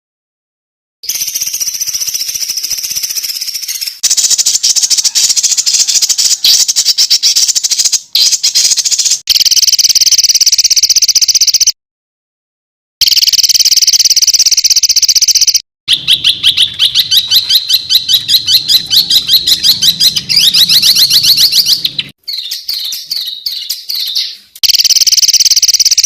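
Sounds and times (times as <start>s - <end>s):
songbird trills and chatter: 1.1s - 9.2s, 15.9s - 24.6s.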